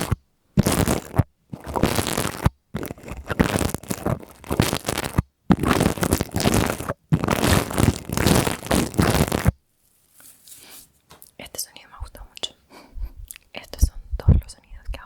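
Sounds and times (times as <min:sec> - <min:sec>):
crinkly scratching on microphone: 0:00.0 - 0:10.9
faint rustle: 0:08.6 - 0:11.4.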